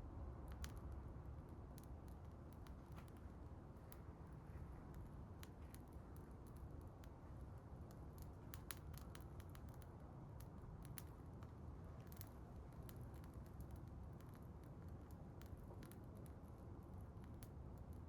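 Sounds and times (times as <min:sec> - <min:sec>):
low fire rumble: 0:00.0 - 0:18.0
fire crackling and popping: 0:07.7 - 0:18.0.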